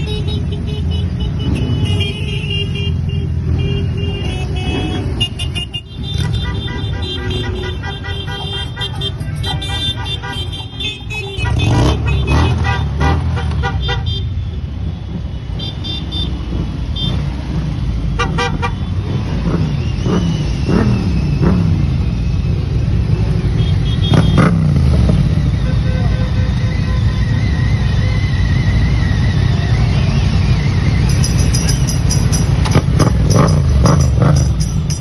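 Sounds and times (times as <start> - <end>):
horns honking short toots: 0.0 - 14.5, 18.1 - 19.2
motorcycles revving past: 27.8 - 35.0.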